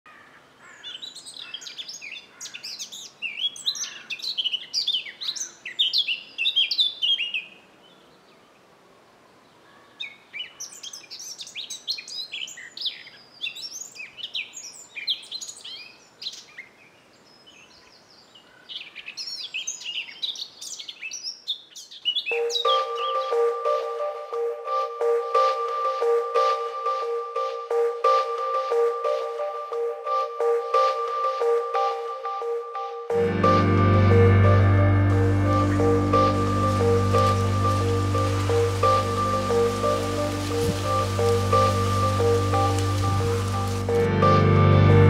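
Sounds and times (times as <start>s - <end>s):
songbirds chirping and warbling: 0.1s - 23.5s, 35.2s - 44.0s.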